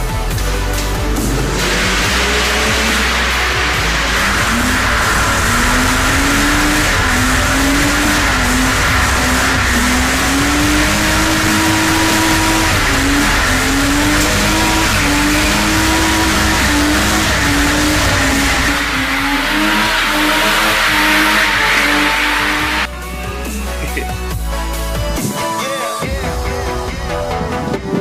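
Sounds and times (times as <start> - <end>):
car engine revving hard: 0.6 - 22.9
tyre squeal and hiss: 1.6 - 22.9.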